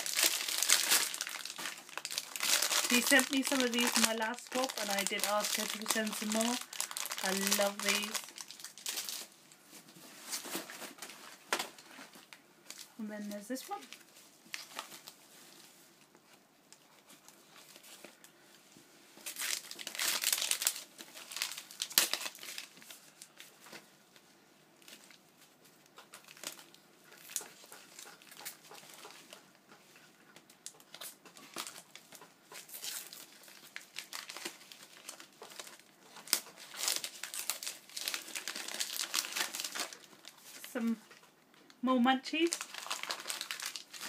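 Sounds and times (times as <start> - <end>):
packaging crinkling and tearing: 0.0 - 9.4, 13.5 - 15.2, 19.2 - 23.8, 25.8 - 29.4, 30.4 - 40.8, 42.4 - 44.0.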